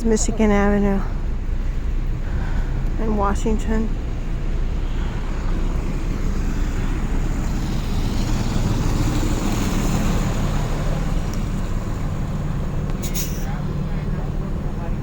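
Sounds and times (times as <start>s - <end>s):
city traffic noise: 0.0s - 15.0s
large vehicle engine rumbling: 0.0s - 15.0s.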